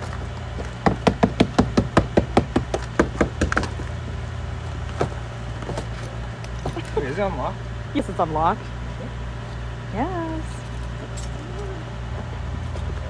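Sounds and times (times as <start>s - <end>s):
hammer striking car door: 0.8s - 3.8s.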